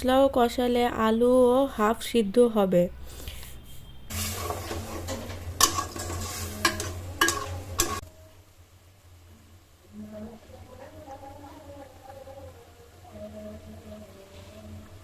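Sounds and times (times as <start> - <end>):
spatula scraping and knocking a pan: 4.1 - 8.0
potatoes sizzling in a pan: 4.1 - 8.1.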